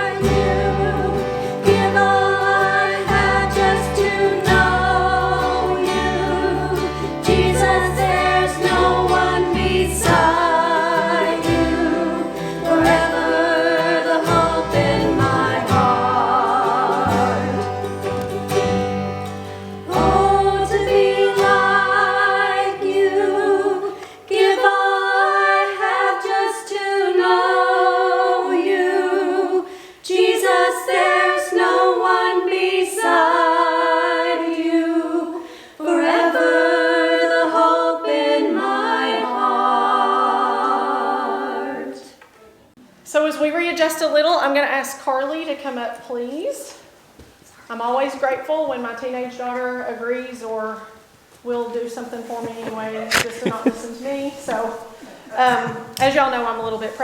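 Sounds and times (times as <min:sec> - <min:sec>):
low instrumental backing: 0:00.0 - 0:23.6
guitar: 0:00.0 - 0:24.7
voices singing together: 0:00.0 - 0:42.4, 0:52.2 - 0:57.0.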